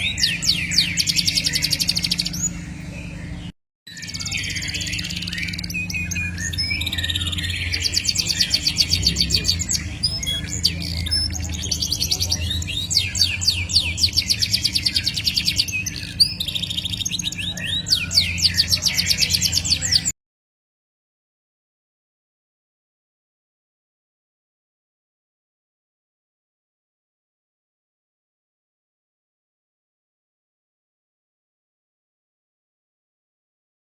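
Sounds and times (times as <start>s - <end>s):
songbird trilling: 0.0s - 3.3s, 3.9s - 20.1s.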